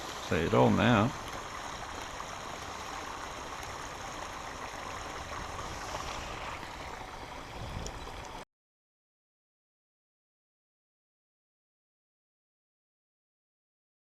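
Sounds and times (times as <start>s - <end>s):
small waterfall rushing: 0.0s - 8.4s.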